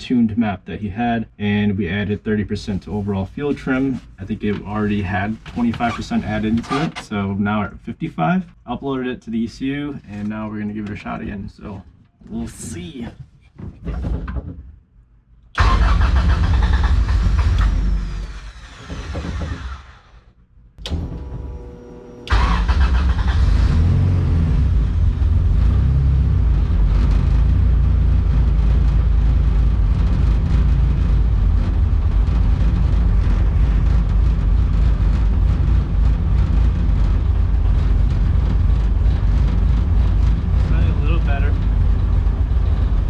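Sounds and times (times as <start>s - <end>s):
engine cranking and idling: 15.5s - 43.0s
engine click: 15.6s - 20.2s, 22.3s - 23.7s.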